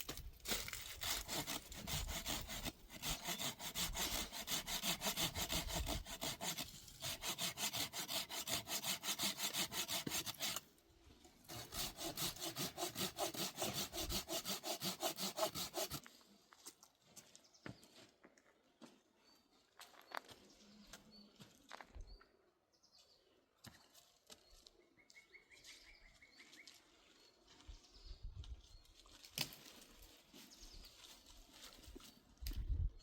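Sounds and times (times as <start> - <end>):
hand saw cutting wood: 0.0 - 10.7, 11.5 - 16.1.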